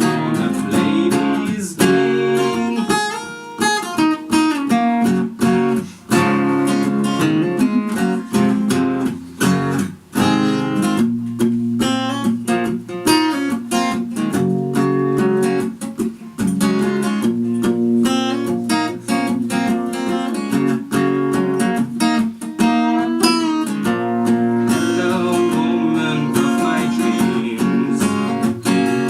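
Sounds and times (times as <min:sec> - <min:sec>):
acoustic guitar strumming chords: 0:00.0 - 0:29.0.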